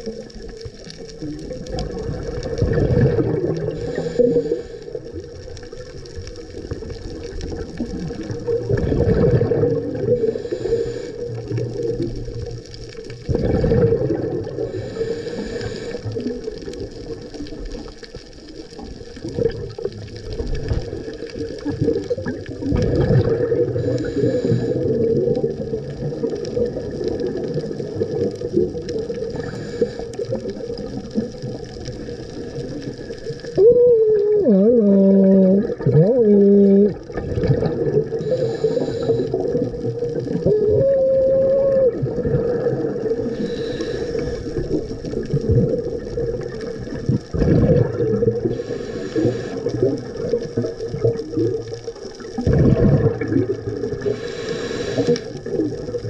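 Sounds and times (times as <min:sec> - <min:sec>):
exhaled air bubbling underwater: 0:00.0 - 0:56.0
underwater rumble: 0:00.0 - 0:56.0
hiss of inhalation: 0:03.6 - 0:05.2, 0:10.0 - 0:11.6, 0:14.6 - 0:16.3, 0:23.7 - 0:25.3, 0:29.3 - 0:30.6, 0:38.1 - 0:39.9, 0:43.2 - 0:44.9, 0:48.4 - 0:50.0, 0:54.0 - 0:55.4.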